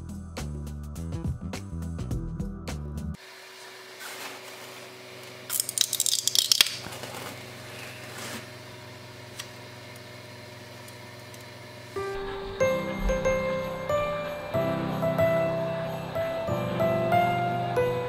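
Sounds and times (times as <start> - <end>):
printer humming: 7.4 - 18.0.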